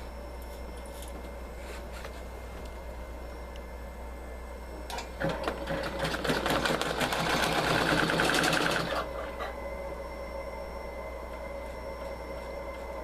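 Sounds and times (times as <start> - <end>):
low steady hum: 0.0 - 6.0, 8.8 - 13.0.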